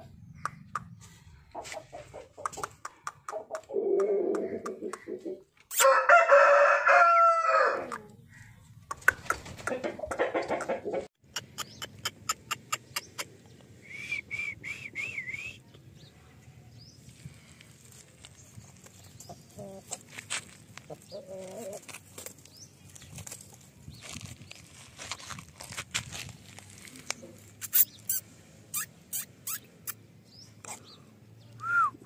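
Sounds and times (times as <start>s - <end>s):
low clucking calls: 0.0s - 5.8s, 7.9s - 15.2s
rooster crowing: 5.8s - 7.9s.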